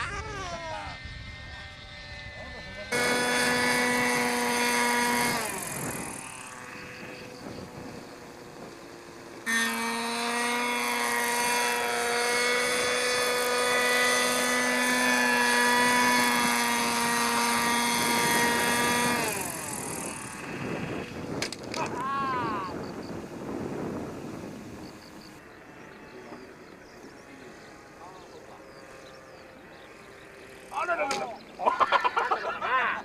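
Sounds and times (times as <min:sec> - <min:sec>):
model helicopter rotor whine: 0:00.0 - 0:33.0.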